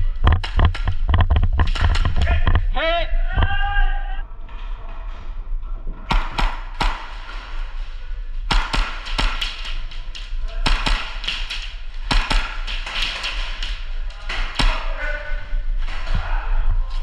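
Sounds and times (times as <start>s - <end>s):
steady low hum: 0.0s - 17.0s
airsoft pistol shots: 6.1s - 7.4s, 8.5s - 10.0s, 10.6s - 13.8s.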